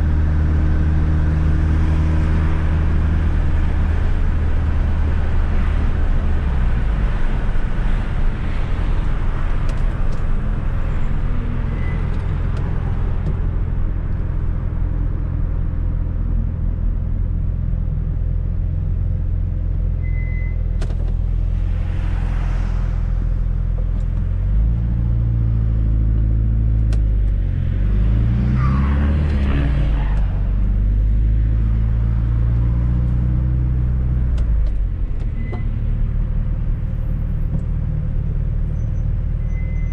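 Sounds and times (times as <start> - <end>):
car engine humming while driving: 0.0 - 39.9.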